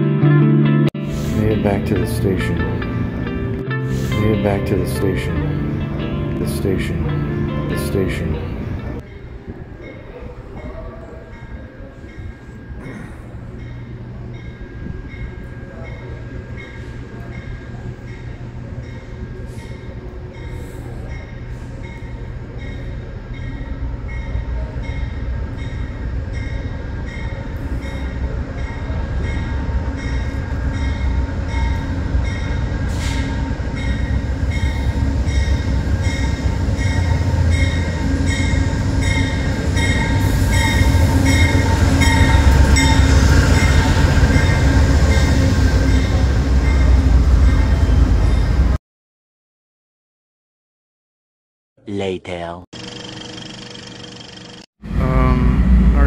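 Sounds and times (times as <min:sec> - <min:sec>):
diesel locomotive rumble: 0:01.0 - 0:48.8, 0:54.8 - 0:56.0
train bell ringing: 0:04.0 - 0:48.8.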